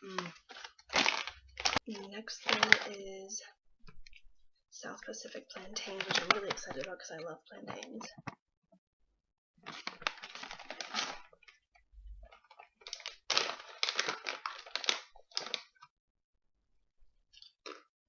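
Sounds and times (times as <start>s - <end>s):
plastic snack bag crinkling: 0.0s - 3.2s, 5.2s - 8.2s, 9.6s - 11.6s, 12.2s - 15.9s.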